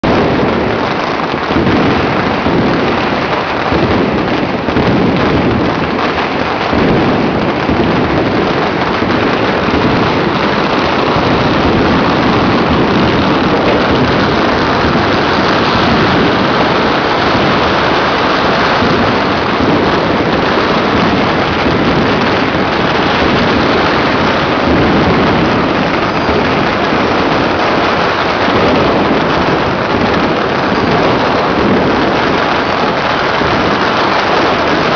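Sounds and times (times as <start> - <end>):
firecrackers crackling and popping: 0.0 - 34.9.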